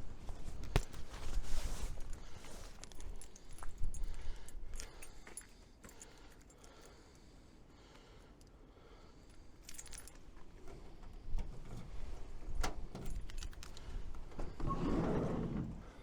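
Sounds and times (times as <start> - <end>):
keys jangling: 2.0 - 7.2, 9.3 - 10.8, 12.8 - 13.9.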